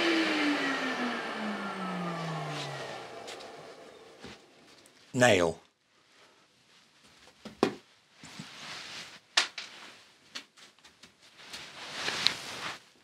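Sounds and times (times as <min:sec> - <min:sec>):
rustling: 0:05.9 - 0:13.0.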